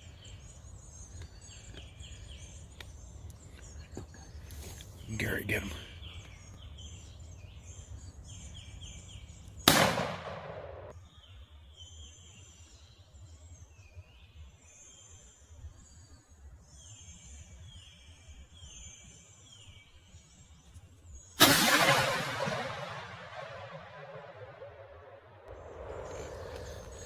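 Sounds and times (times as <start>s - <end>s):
songbirds chirping: 0.0s - 27.0s
shotgun blast: 9.7s - 10.9s, 21.4s - 25.5s.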